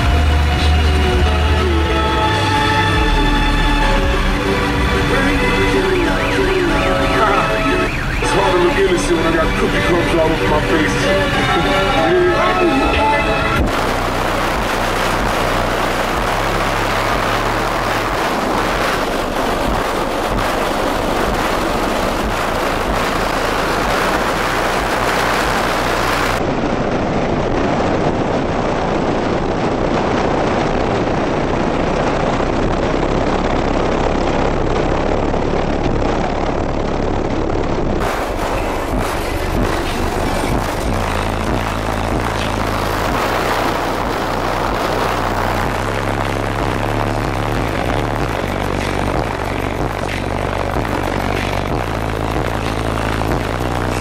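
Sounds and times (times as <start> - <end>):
deep bass notes from subwoofers: 0.0 - 26.5, 28.8 - 54.0
microphone overloading: 5.1 - 26.4.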